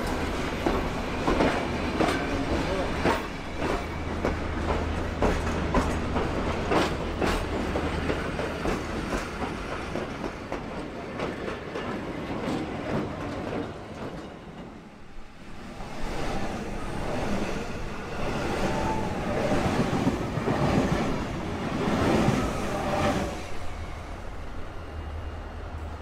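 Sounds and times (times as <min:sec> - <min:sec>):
train wheels clacking over rail joints: 0:00.0 - 0:14.8.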